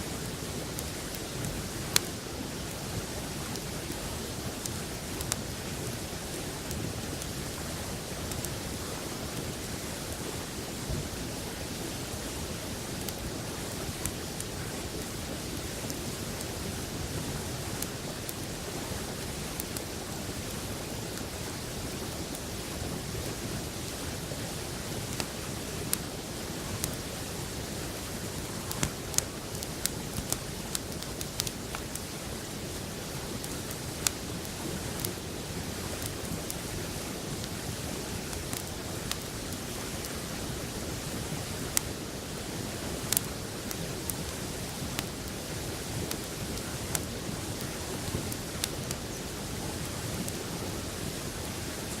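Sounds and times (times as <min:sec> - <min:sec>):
river flowing: 0:00.0 - 0:52.0
campfire crackling: 0:00.1 - 0:52.0.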